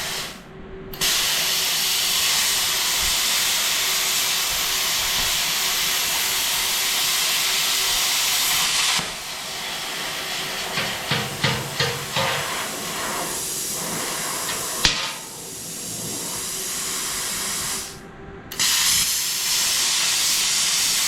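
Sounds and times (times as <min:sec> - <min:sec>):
plasma cutter hissing: 0:00.0 - 0:00.4, 0:01.0 - 0:21.0.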